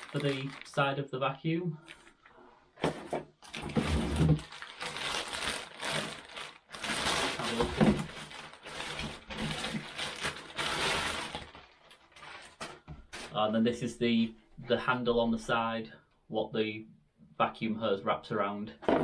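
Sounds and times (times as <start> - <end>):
packaging rustling and crinkling: 0.0 - 0.9, 2.9 - 13.4.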